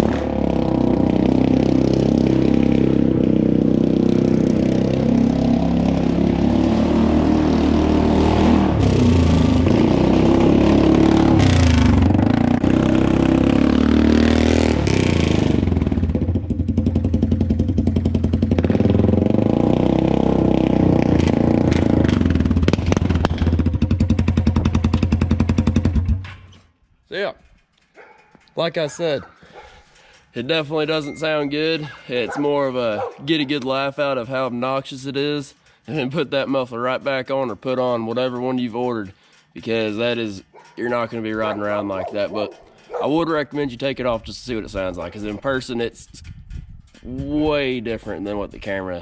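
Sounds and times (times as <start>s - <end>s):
loud atv engine revving and idling: 0.0s - 26.4s, 39.6s - 45.9s.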